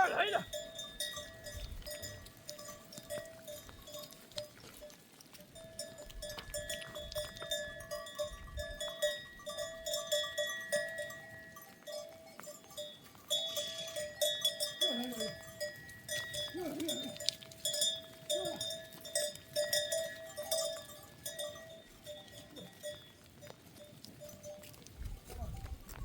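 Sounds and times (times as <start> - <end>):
goat bells clinking: 0.0 - 26.0.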